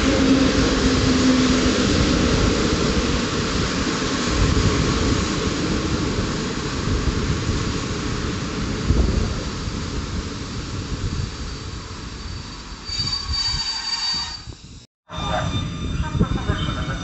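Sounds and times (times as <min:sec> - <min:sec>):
train rumbling past: 0:00.0 - 0:17.0
high wheel squeal: 0:11.4 - 0:17.0.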